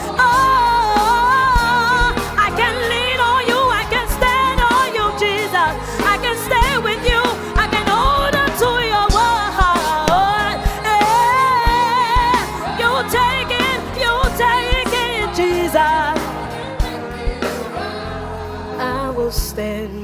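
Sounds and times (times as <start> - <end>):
bass: 0.0 - 20.0
live band playing: 0.0 - 20.0
drum hits: 6.0 - 18.0.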